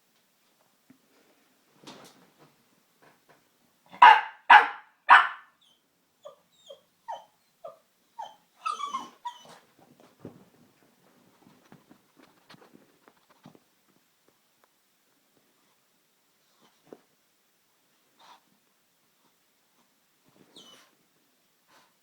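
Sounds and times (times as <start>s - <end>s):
puppy barking: 3.9s - 5.6s
puppy whimpering: 6.2s - 9.6s.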